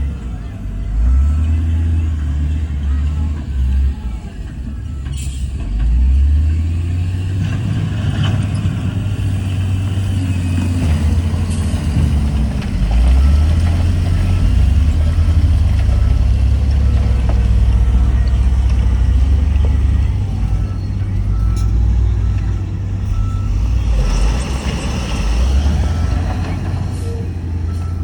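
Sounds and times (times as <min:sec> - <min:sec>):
diesel engine rumbling: 0:00.0 - 0:28.0.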